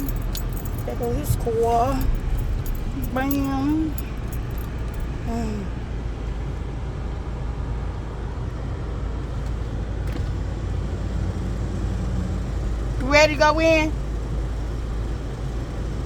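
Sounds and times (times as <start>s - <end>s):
car engine rumbling: 0.0s - 16.0s.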